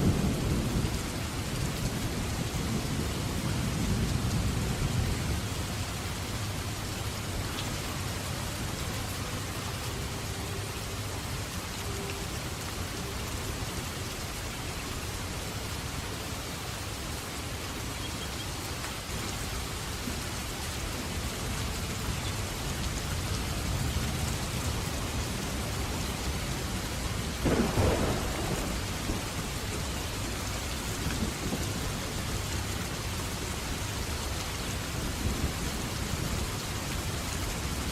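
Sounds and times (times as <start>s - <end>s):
low rumble of thunder: 0.0s - 6.9s, 21.1s - 32.8s
steady rain falling: 0.0s - 37.9s
sharp thunderclap: 27.4s - 29.6s.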